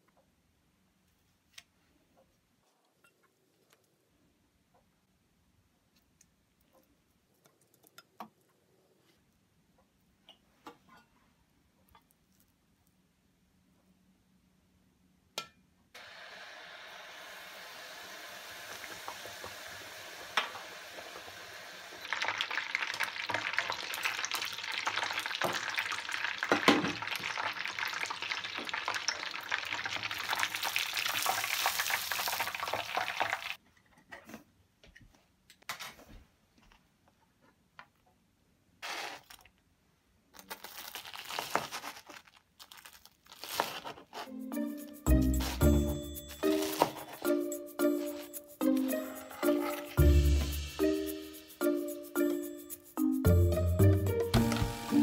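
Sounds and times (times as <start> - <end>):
chicken deep-frying in oil: 16.0 - 33.6
knife crunching through crust: 40.4 - 44.3.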